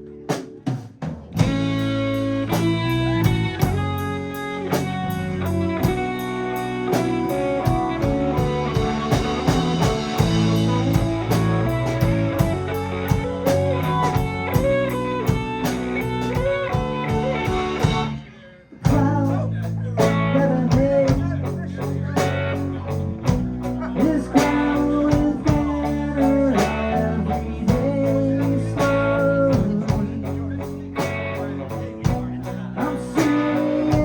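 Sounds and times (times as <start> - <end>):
live rock band playing: 0.0 - 34.0
electric guitar bent notes: 1.4 - 19.2.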